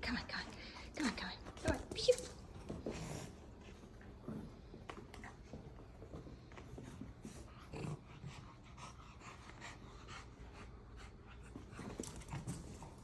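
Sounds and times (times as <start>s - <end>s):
dog panting: 2.7s - 13.0s.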